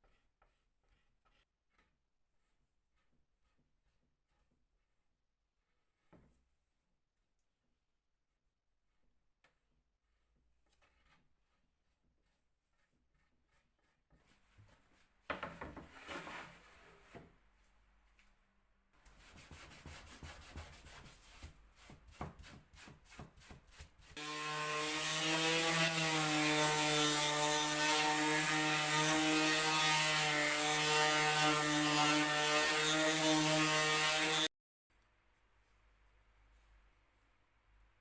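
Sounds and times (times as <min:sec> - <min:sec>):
small power tool motor: 0:24.2 - 0:25.9.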